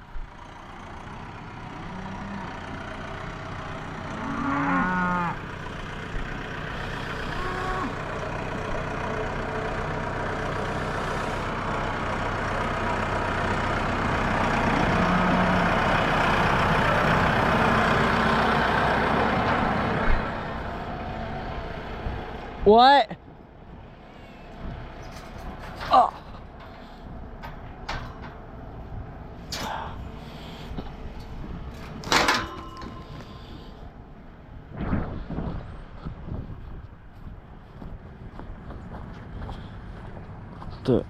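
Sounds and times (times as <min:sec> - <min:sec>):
vehicle engine running: 0:00.0 - 0:41.0
cattle mooing: 0:01.7 - 0:02.7, 0:04.0 - 0:05.5, 0:06.9 - 0:08.0, 0:14.7 - 0:15.9.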